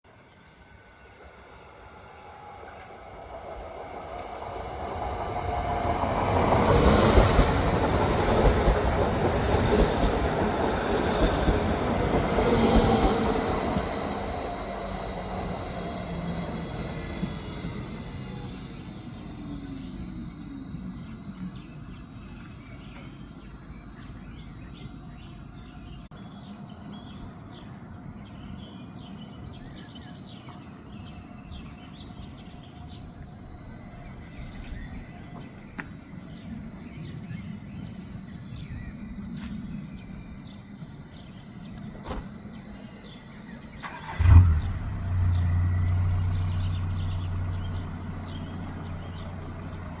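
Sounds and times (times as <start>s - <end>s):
birds chirping: 0.2s - 50.0s
strong low hum: 10.8s - 50.0s.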